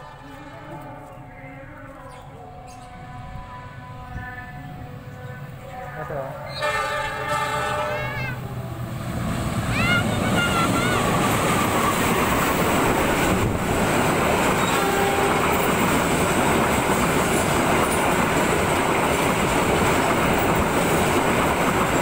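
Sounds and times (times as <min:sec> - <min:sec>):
train wheels rushing on rails: 0:06.6 - 0:22.0.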